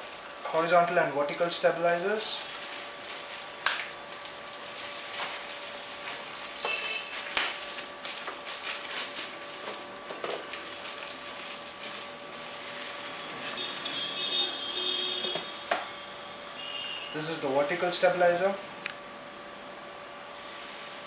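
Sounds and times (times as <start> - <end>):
packaging crinkling: 0.0 - 1.5, 2.1 - 15.5.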